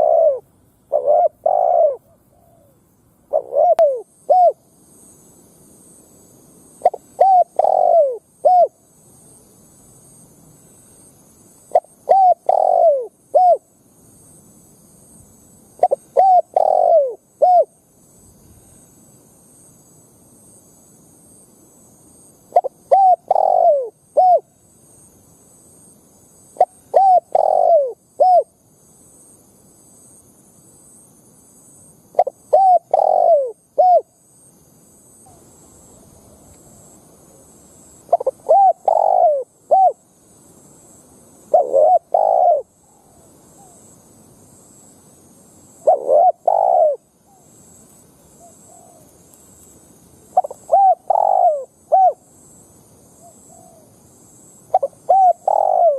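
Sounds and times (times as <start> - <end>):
dove cooing: 0.0 - 4.6, 6.8 - 8.8, 11.7 - 13.7, 15.8 - 17.8, 22.5 - 24.5, 26.6 - 28.5, 32.2 - 34.2, 38.1 - 40.0, 41.5 - 43.8, 45.8 - 47.4, 48.4 - 49.1, 50.4 - 52.2, 53.2 - 53.9, 54.7 - 55.9.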